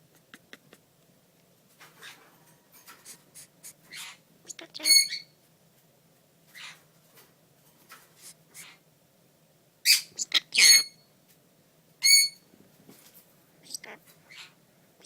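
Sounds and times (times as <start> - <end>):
parrot chattering calls: 3.1 - 5.4, 8.5 - 8.8, 9.8 - 11.0, 12.0 - 12.4
parrot squawks: 3.8 - 5.4, 6.5 - 6.8, 8.5 - 8.8, 9.8 - 11.0, 12.0 - 12.4, 13.7 - 14.6.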